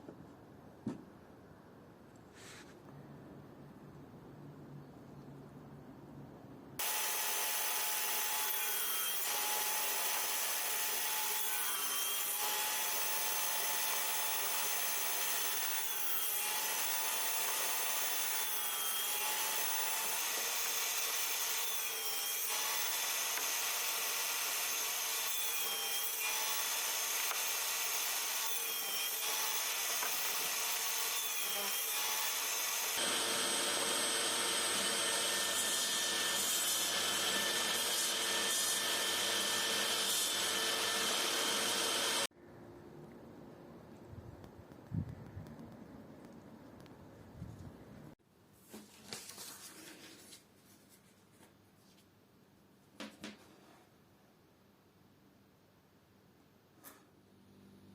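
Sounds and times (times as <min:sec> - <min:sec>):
woodworking power tool on wood: 0:06.8 - 0:42.3.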